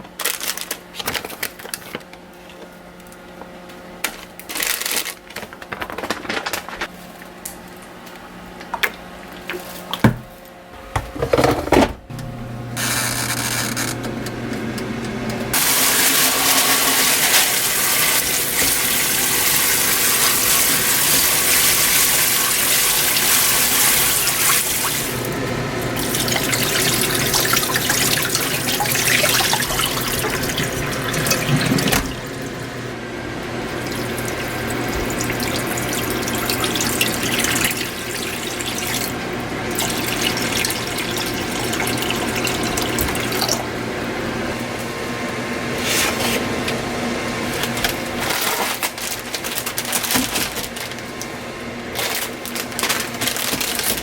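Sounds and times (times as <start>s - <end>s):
knocks and clinks in sink: 9.9s - 12.1s
tap water running into sink: 15.5s - 32.9s, 33.7s - 43.6s.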